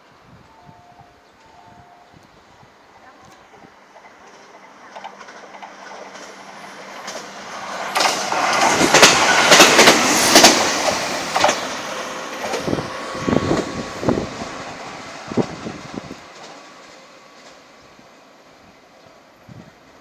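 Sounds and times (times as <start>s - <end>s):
electric train running past: 0.0s - 20.0s
wheels clicking over rail joints: 3.3s - 17.8s
scattered knocks: 7.9s - 10.6s.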